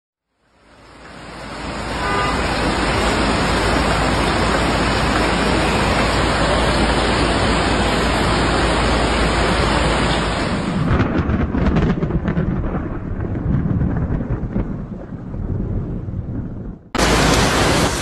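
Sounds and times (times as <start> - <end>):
rushing water: 0.4 - 10.9, 17.0 - 18.0.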